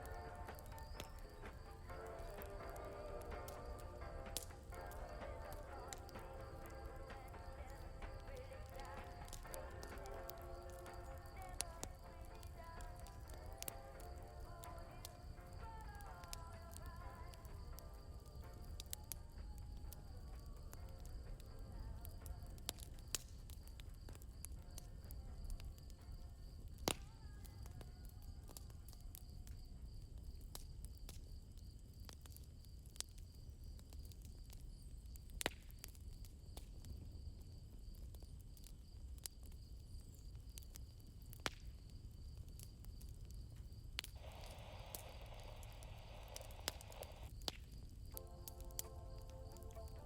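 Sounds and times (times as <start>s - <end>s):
crickets chirping: 0.0s - 32.7s, 36.8s - 50.0s
campfire crackling and popping: 0.0s - 50.0s
low rumble: 44.2s - 47.3s.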